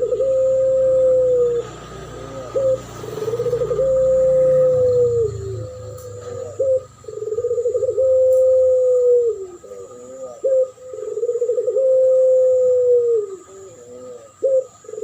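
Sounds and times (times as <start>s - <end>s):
doves cooing: 0.0s - 15.0s.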